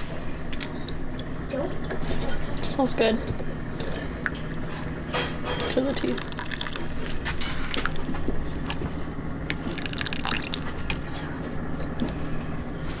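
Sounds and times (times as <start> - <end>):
liquid pouring and dripping: 5.9 - 8.2, 9.5 - 11.0.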